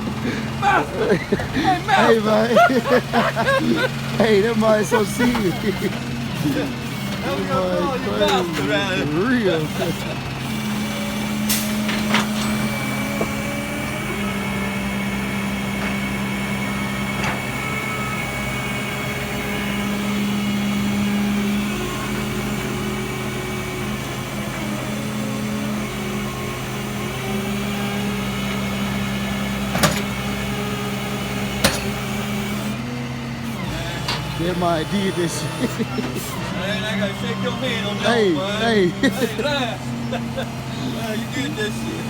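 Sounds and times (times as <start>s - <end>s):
tow truck engine and hydraulics: 0.0s - 42.0s
sharp metallic clanks: 31.6s - 32.0s.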